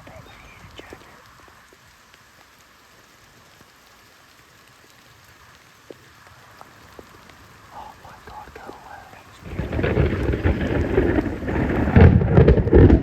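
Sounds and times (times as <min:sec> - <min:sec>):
raindrops ticking: 0:00.0 - 0:13.0
steady rain hiss: 0:00.0 - 0:13.0.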